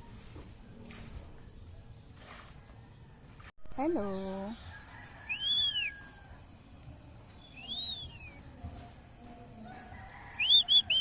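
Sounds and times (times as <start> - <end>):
parrot whistling calls: 5.3 - 6.0, 10.4 - 11.0.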